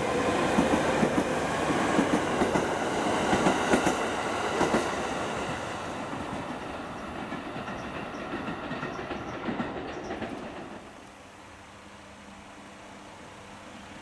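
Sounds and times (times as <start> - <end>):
train wheels clacking over joints: 6.2 - 10.9.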